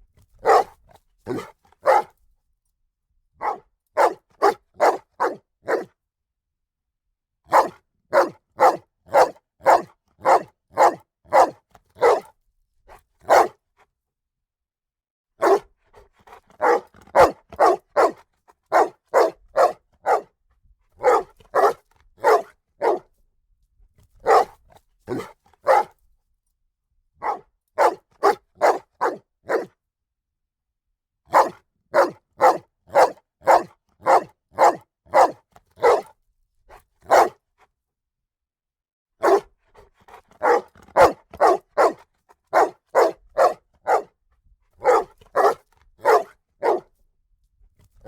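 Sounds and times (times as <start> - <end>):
dog barking: 0.4 - 2.2, 3.4 - 5.9, 7.5 - 12.3, 13.2 - 13.6, 15.4 - 15.7, 16.3 - 20.4, 21.0 - 23.1, 24.2 - 26.0, 27.2 - 29.7, 31.3 - 36.2, 37.0 - 37.4, 39.2 - 44.2, 44.8 - 47.0.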